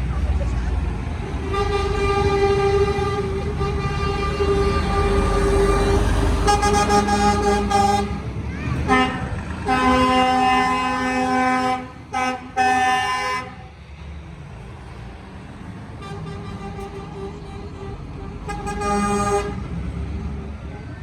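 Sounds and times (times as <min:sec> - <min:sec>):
rumble of passing trucks: 0:00.0 - 0:21.0
truck horn blasts: 0:01.2 - 0:13.7, 0:16.0 - 0:19.7.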